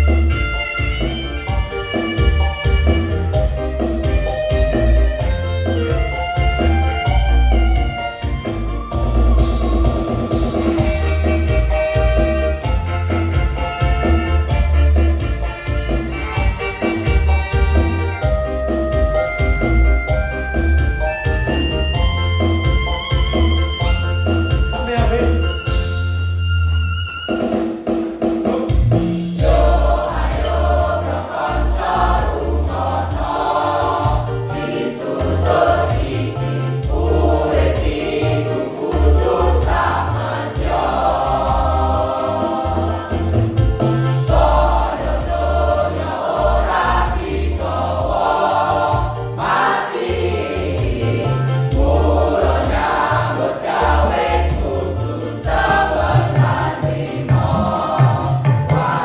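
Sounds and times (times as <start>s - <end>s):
accompaniment with heavy bass notes: 0.0s - 59.0s
choir singing: 29.4s - 59.0s.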